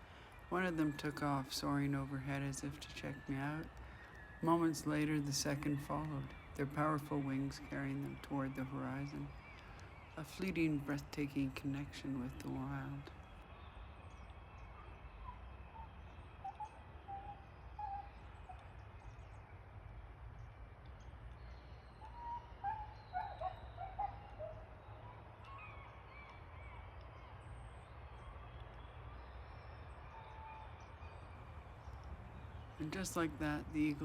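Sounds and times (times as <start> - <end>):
birds calling: 14.6 - 19.3, 21.4 - 28.4, 29.4 - 34.0.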